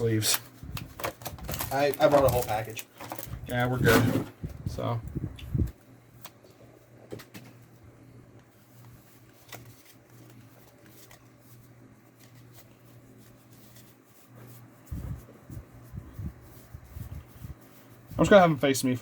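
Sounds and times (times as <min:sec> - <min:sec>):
trading cards rustling: 0:00.0 - 0:04.0, 0:08.6 - 0:19.0
low steady hum: 0:00.0 - 0:19.0.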